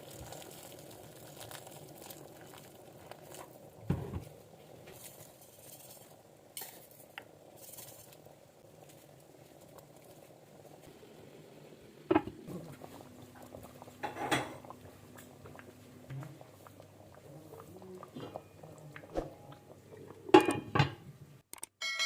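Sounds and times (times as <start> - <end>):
cookware clinking and knocking: 14.0 - 14.7, 20.3 - 21.0.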